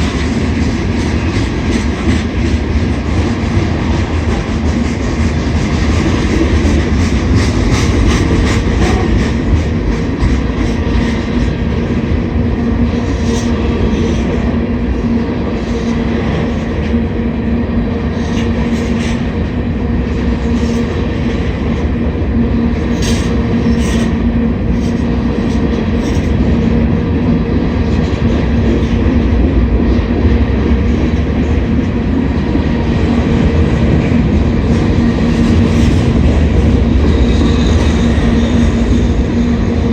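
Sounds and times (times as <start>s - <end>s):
freight train rumble and rattle: 0.0s - 39.9s.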